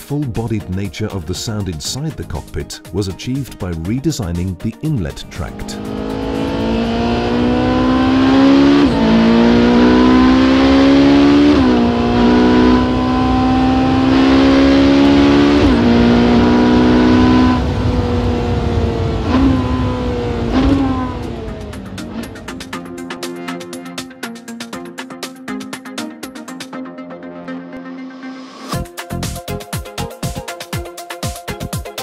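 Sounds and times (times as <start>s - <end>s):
sports car engine accelerating: 5.3s - 24.3s
engine rev blips: 5.5s - 23.5s.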